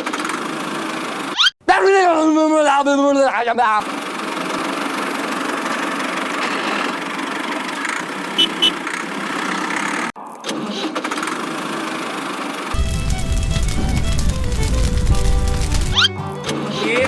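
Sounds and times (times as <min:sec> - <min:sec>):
short high beeps: 0:08.4 - 0:08.8.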